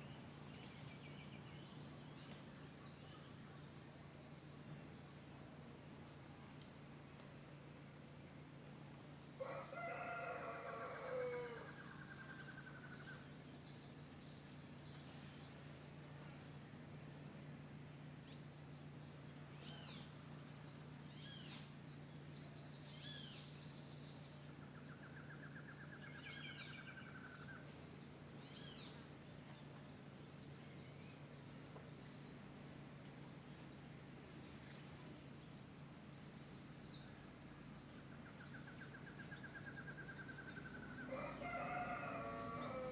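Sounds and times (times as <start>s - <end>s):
rooster crowing: 9.4s - 11.8s, 41.1s - 42.9s.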